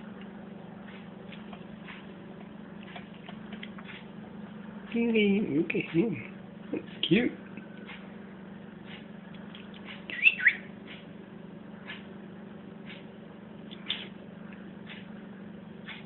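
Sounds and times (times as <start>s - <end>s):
low hum: 0.0s - 16.0s
canary chirping: 10.1s - 10.7s.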